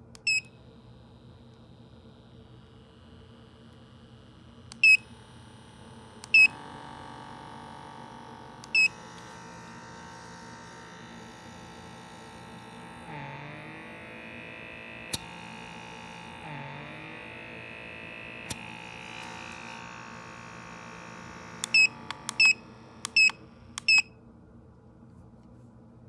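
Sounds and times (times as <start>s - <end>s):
small suction motor whine: 0.0s - 24.0s
short beeps: 21.6s - 24.1s.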